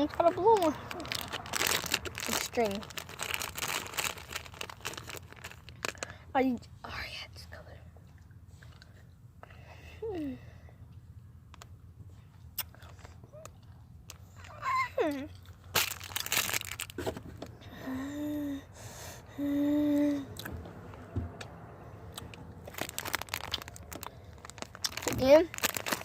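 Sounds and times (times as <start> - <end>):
candy packet crinkling and tearing: 0.0 - 6.2, 15.1 - 17.1, 22.1 - 26.0.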